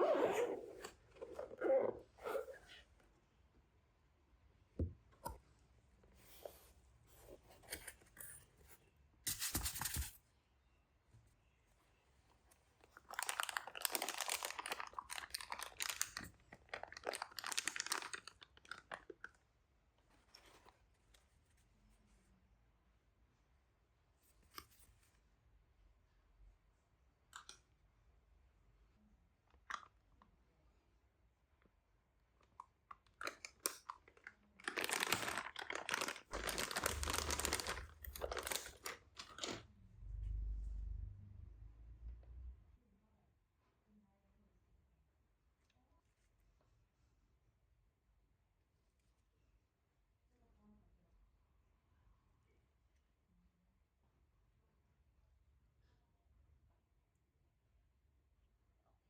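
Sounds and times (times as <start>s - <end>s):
packaging crinkling and rustling: 12.9s - 19.4s, 33.2s - 39.6s.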